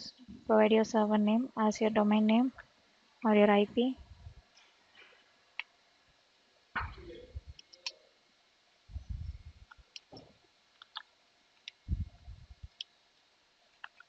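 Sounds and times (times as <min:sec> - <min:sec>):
keyboard and mouse clicks: 0:10.8 - 0:11.1, 0:13.8 - 0:14.0.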